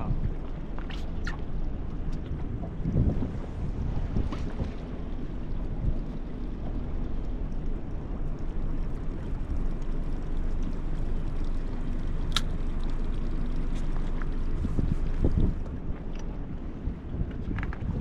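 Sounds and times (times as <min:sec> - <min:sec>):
wind on microphone: 0:00.0 - 0:09.6, 0:13.8 - 0:18.0
water gurgling around boat: 0:00.0 - 0:18.0.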